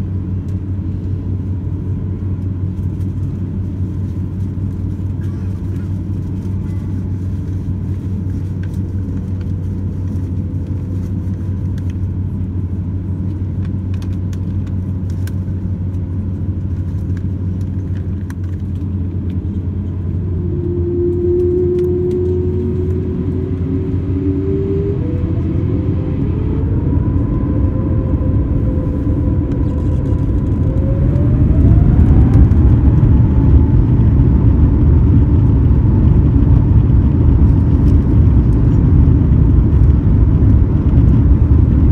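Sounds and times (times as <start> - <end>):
aircraft cabin low rumble: 0.0 - 41.9
whining jet engine tones: 19.0 - 41.9.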